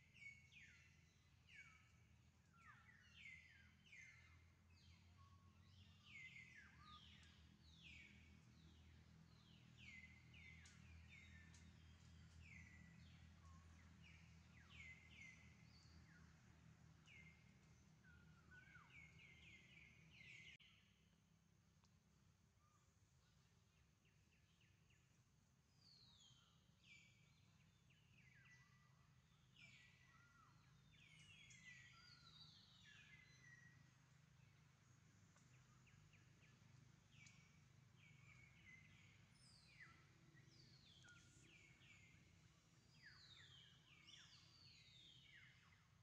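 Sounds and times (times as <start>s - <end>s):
birds chirping: 17.0s - 20.6s, 29.4s - 45.8s.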